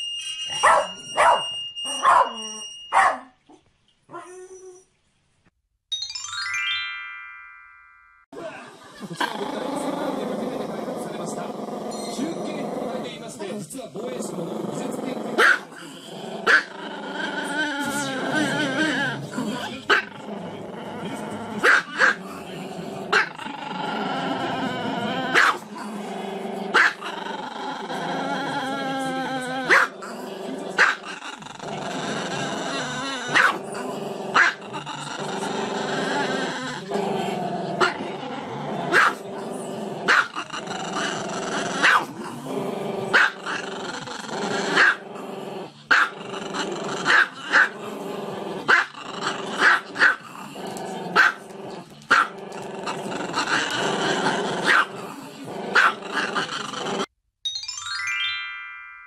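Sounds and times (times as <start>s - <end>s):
dog barking: 0.6s - 3.3s, 15.4s - 15.7s, 16.5s - 16.7s, 21.6s - 22.2s, 25.4s - 25.6s, 26.7s - 27.0s, 29.7s - 29.9s, 30.8s - 31.0s, 33.3s - 33.6s, 34.4s - 34.6s, 38.9s - 39.2s, 40.1s - 40.3s, 41.8s - 42.1s, 43.1s - 43.4s, 44.8s - 45.0s, 45.9s - 46.1s, 47.1s - 47.7s, 48.7s - 48.9s, 49.6s - 50.2s, 51.2s - 51.4s, 52.1s - 52.4s, 54.6s - 54.9s, 55.8s - 56.0s.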